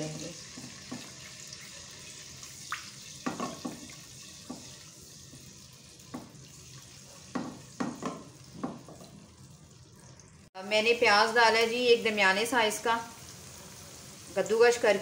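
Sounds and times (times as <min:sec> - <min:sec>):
spices sizzling in hot oil: 0:00.0 - 0:15.0.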